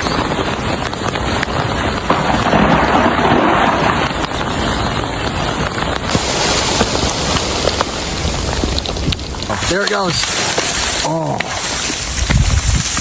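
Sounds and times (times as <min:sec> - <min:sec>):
wind and rain on microphone: 0:00.0 - 0:13.0.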